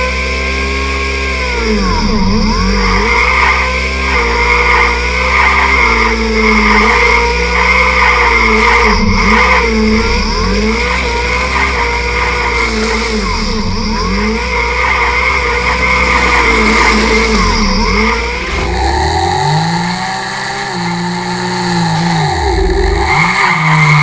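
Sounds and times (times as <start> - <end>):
synthesized race car engine revving: 0.0 - 24.0
steady high whine: 17.4 - 24.0.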